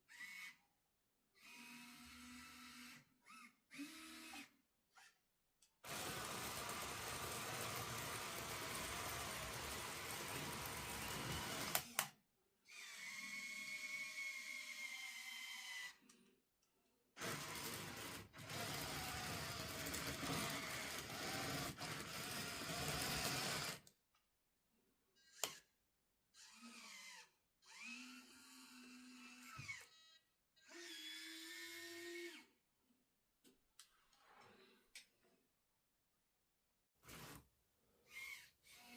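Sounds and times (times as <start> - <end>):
small electric motors whining: 5.8 - 12.1, 17.2 - 23.8, 26.4 - 32.5.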